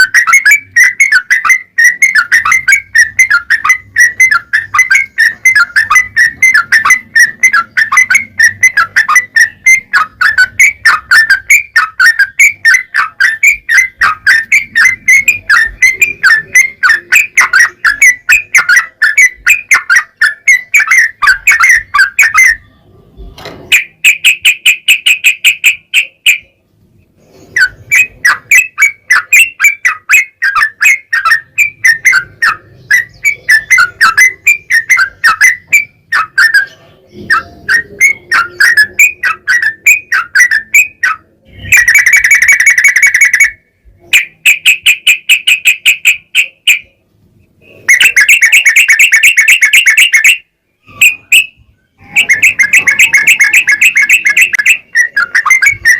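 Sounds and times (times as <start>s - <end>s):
bird singing chattering trills: 0.0s - 22.9s, 23.7s - 55.9s.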